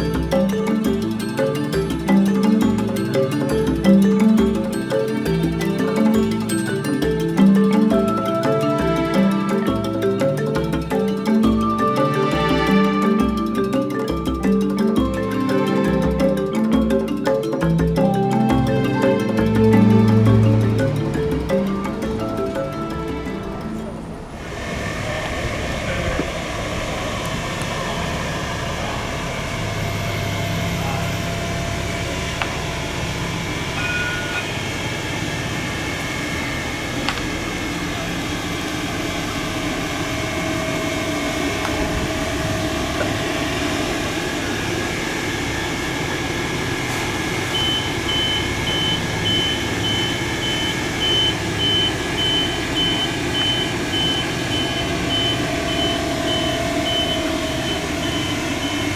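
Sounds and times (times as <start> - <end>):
bus driving off: 19.1 - 58.9.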